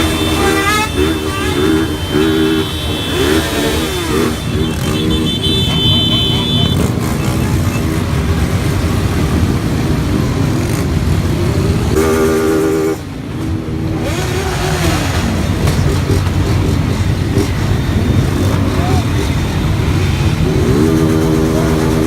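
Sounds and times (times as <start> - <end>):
vehicle horn: 0.0 - 8.0, 11.9 - 14.2, 19.9 - 22.0
engine revving: 0.0 - 22.0
motorcycle engines running: 0.0 - 22.0
road noise: 0.0 - 22.0.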